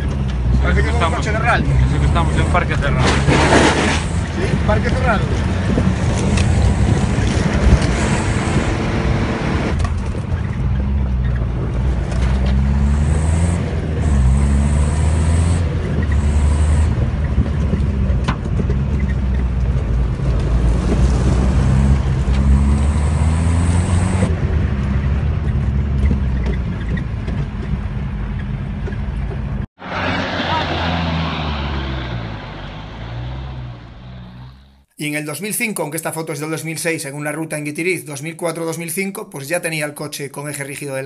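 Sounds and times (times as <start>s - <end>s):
diesel engine accelerating: 0.0s - 34.9s.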